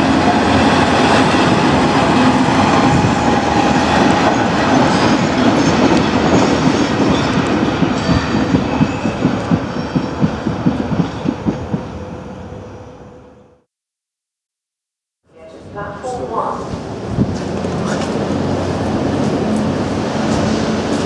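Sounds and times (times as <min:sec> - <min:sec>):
train wheels rolling on rails: 0:00.0 - 0:12.4, 0:16.6 - 0:21.0.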